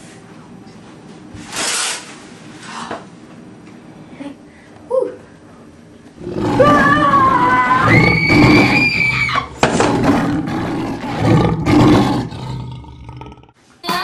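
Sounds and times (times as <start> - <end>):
rough roaring surges: 6.2 - 13.5
loud high-pitched scream: 6.5 - 9.6.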